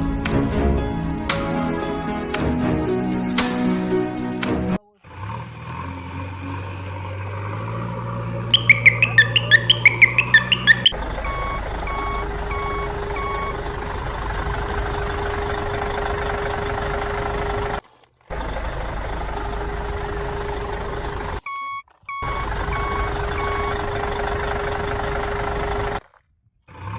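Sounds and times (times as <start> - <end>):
heavy vehicle engine noise: 0.0 - 21.4, 22.2 - 26.0
low engine hum rising in pitch: 0.0 - 21.4, 22.2 - 26.0
loud chirps: 8.5 - 11.0
reversing beeper: 8.5 - 13.6.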